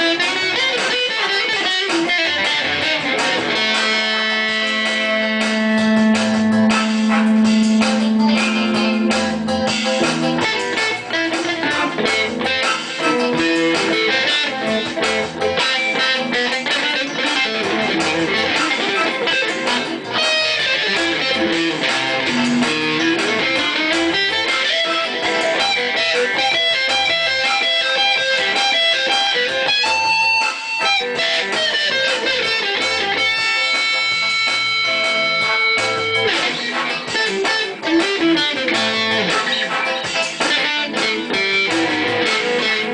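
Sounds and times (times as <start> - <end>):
electric guitar melody: 0.0 - 42.9.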